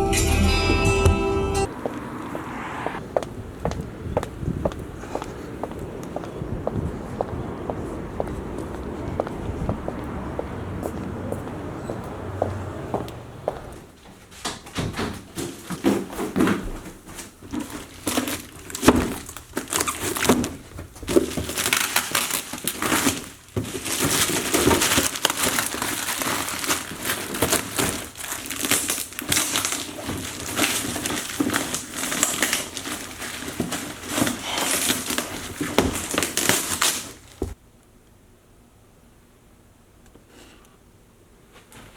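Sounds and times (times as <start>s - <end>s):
material crinkling and crumpling: 17.1s - 37.6s.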